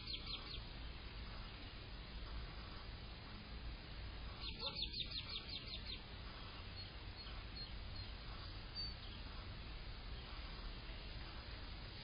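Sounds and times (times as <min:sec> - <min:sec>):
low background rumble: 0:00.0 - 0:12.0
small bird trilling: 0:04.4 - 0:06.0.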